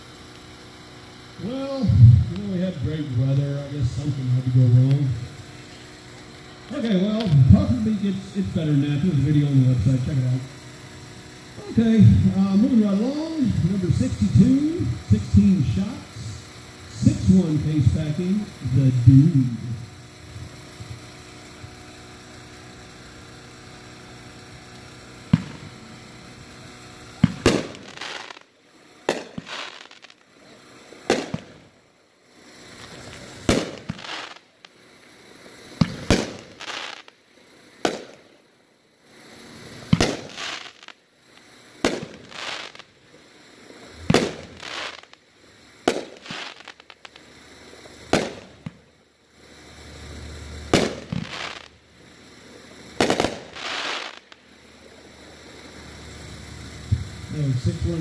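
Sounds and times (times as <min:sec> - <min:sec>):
low hum: 0:00.0 - 0:40.4, 0:41.0 - 0:58.0
sharp crack: 0:24.6 - 0:26.1, 0:27.2 - 0:28.5, 0:29.1 - 0:30.3, 0:31.1 - 0:31.7, 0:32.9 - 0:34.8, 0:35.8 - 0:37.2, 0:37.8 - 0:38.2, 0:39.9 - 0:41.0, 0:41.8 - 0:42.9, 0:44.0 - 0:45.2, 0:45.9 - 0:47.3, 0:48.1 - 0:48.8, 0:50.7 - 0:51.8, 0:53.0 - 0:54.5
firework bangs with echo: 0:25.2 - 0:25.8, 0:27.1 - 0:28.4, 0:29.1 - 0:30.2, 0:31.0 - 0:31.7, 0:33.4 - 0:34.4, 0:35.8 - 0:37.1, 0:37.8 - 0:38.2, 0:39.9 - 0:41.0, 0:41.8 - 0:42.9, 0:44.0 - 0:45.1, 0:45.8 - 0:47.2, 0:48.1 - 0:48.8, 0:50.7 - 0:51.7, 0:53.0 - 0:54.3.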